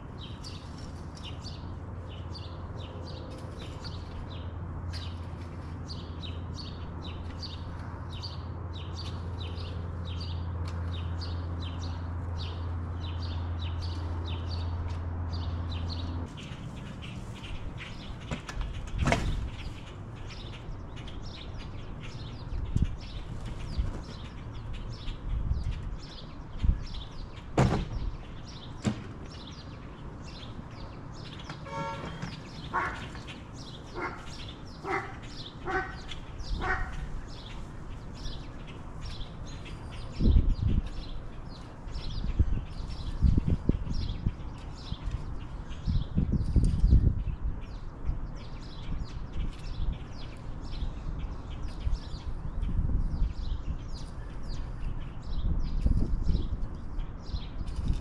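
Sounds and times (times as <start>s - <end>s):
bird chirping: 0.1s - 58.0s
squeaky calls: 31.7s - 37.1s.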